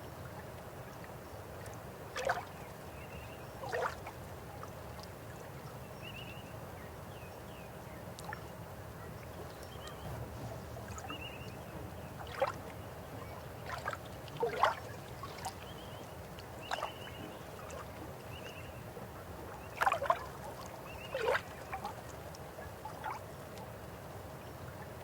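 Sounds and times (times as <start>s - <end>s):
river water flowing: 0.0s - 7.1s, 7.8s - 25.0s
water splashing gurgles: 2.1s - 2.6s, 3.6s - 4.2s, 13.5s - 18.0s, 19.4s - 23.2s.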